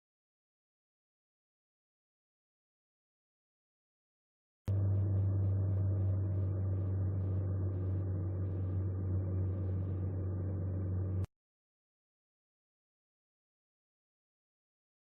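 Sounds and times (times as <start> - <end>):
engine humming: 4.7 - 11.3.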